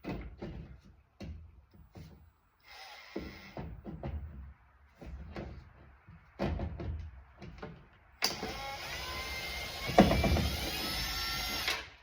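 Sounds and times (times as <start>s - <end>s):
power driver whining: 8.2s - 12.0s.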